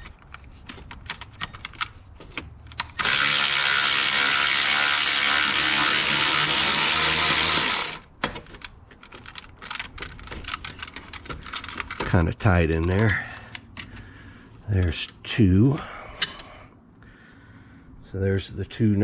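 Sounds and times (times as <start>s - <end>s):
power tool whirring: 2.9s - 8.1s.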